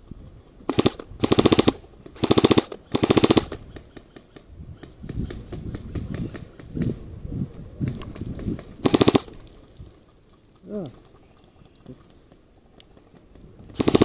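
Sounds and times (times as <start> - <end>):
airsoft gun firing bursts: 0.7 - 3.7, 8.8 - 9.4, 13.7 - 14.0.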